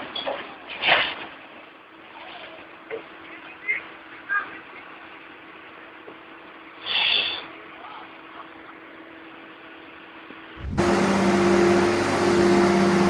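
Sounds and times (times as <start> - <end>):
loud engine-like sound: 10.6 - 13.0
vehicle engine running: 10.6 - 13.0.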